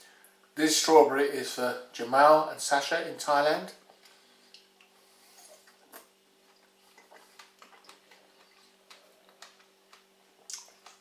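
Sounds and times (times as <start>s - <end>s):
faint steady hum: 0.0s - 11.0s
chewing strawberries: 3.9s - 11.0s.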